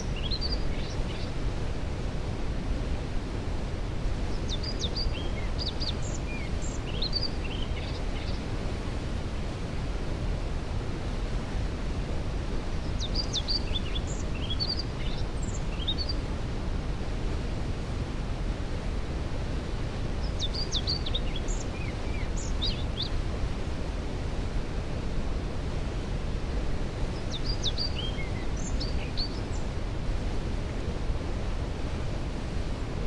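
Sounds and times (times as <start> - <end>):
distant waterfall rushing: 0.0 - 33.0
songbird chirping: 27.2 - 29.6.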